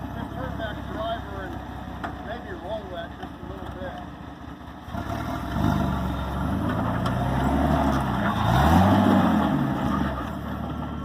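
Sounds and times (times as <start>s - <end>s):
vehicle engine revving: 4.8s - 11.0s.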